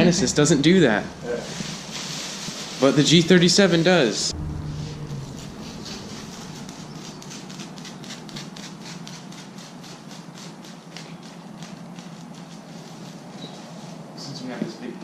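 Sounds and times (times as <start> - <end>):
steady low hum: 0.0 - 15.0
plastic sheeting crackling: 1.2 - 3.9.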